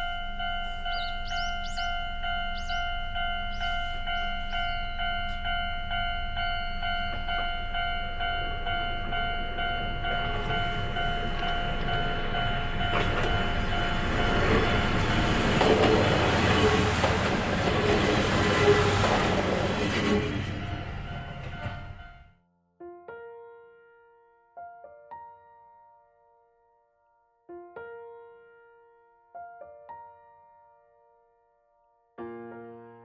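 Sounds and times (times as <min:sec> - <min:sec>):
level-crossing bell ringing: 0:00.0 - 0:17.7, 0:20.2 - 0:22.4
diesel railcar passing: 0:00.0 - 0:22.3.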